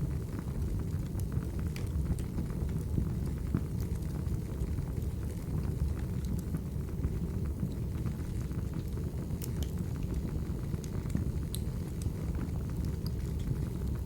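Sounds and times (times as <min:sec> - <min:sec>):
low roar of fire: 0:00.0 - 0:14.0
wood fire crackling and popping: 0:00.0 - 0:14.0.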